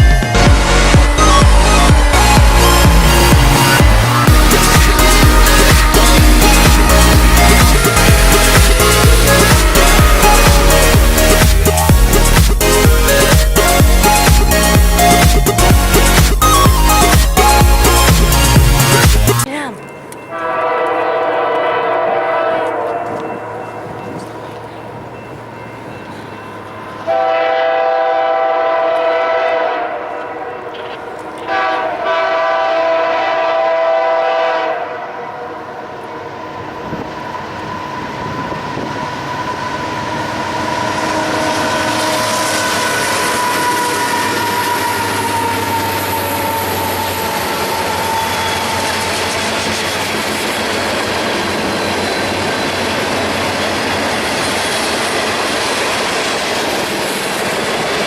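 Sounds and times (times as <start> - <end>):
freight train rumbling past: 0.0 - 58.0
locomotive air horn: 0.3 - 19.4, 20.3 - 23.4, 27.1 - 35.7, 39.8 - 49.4.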